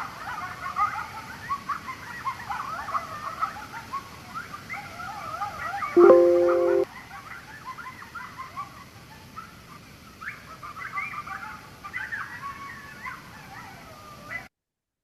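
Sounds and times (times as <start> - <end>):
coyotes yipping and howling: 0.1 - 6.8, 10.3 - 14.5
loud steady tone: 6.0 - 6.9.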